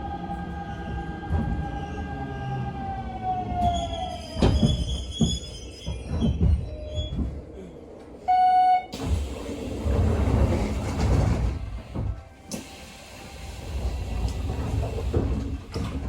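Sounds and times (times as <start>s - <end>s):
train rumble: 0.0s - 16.0s
air hiss: 12.5s - 15.5s.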